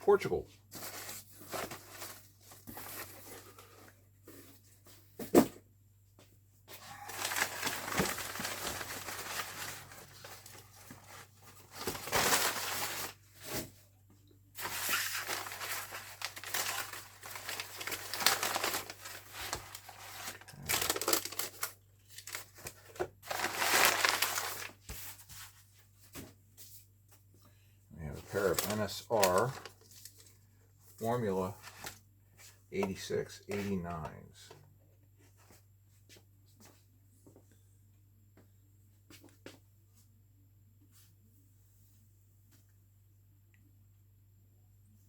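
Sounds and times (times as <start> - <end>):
packaging crinkling and tearing: 6.9 - 13.2, 14.6 - 24.8, 28.4 - 30.3.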